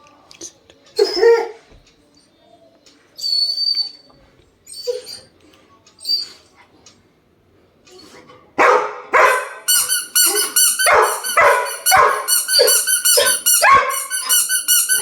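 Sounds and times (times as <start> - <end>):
dog barking: 8.6 - 9.7, 10.3 - 14.1
squeaky toy squeaking: 9.2 - 15.0.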